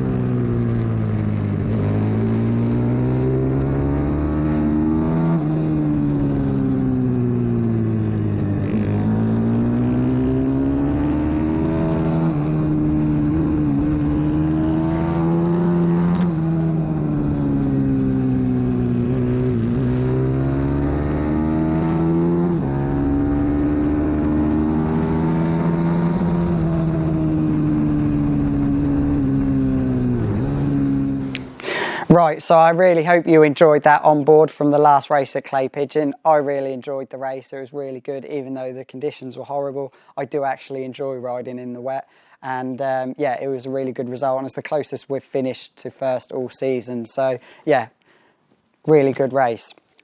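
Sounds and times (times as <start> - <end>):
motorbike engine revving: 0.0 - 32.0.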